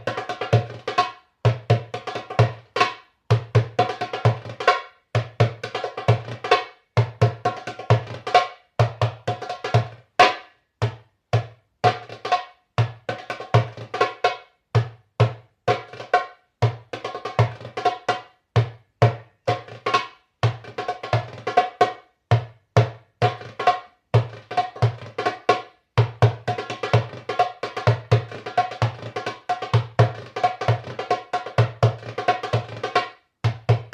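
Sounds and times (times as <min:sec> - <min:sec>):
solo drumming: 0:00.0 - 0:33.9.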